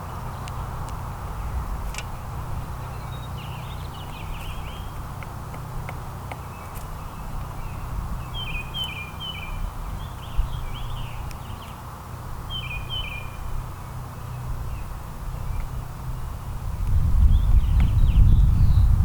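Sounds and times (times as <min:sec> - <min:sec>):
songbirds chirping: 0:00.0 - 0:19.0
steady low rumble: 0:00.0 - 0:19.0.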